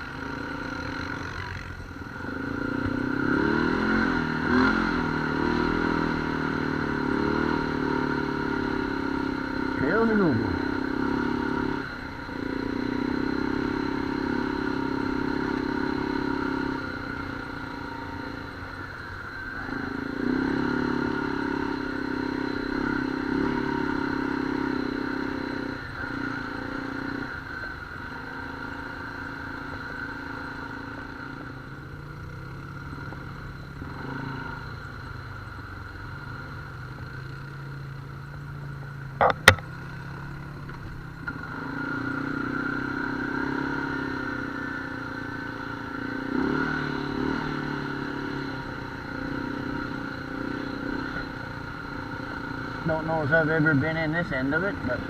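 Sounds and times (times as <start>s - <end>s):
off-road vehicle engine: 0.0s - 55.0s
sharp click or knock: 39.2s - 39.7s.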